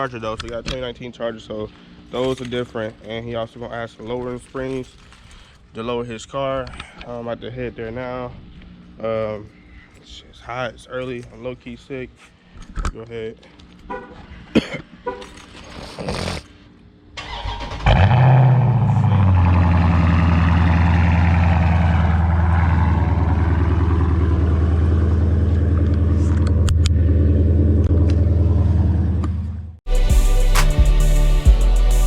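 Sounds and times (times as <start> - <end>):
car engine starting and idling: 17.1 - 31.9.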